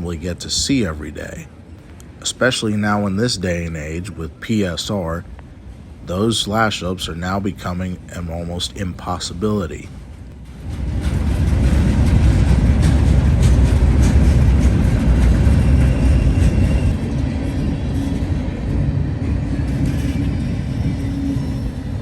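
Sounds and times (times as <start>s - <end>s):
freight train rumbling past: 0.0s - 22.0s
train wheel clicks: 10.2s - 17.0s.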